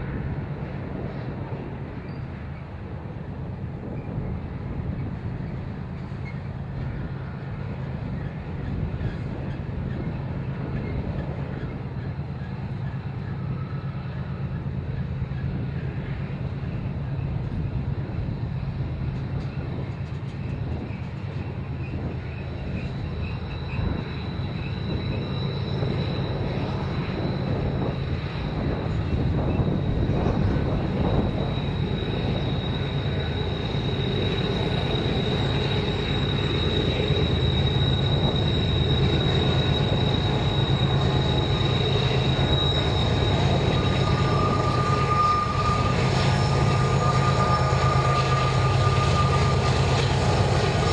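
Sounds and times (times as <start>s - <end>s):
train rumbling by: 0.0s - 50.9s
high wheel squeal: 18.2s - 50.9s.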